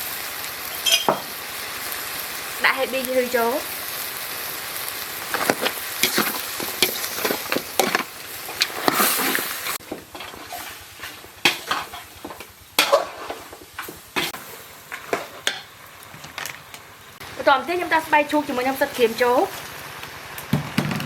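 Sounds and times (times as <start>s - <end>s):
food sizzling in a pan: 0.0s - 20.9s
utensil scraping a pan: 5.3s - 15.6s.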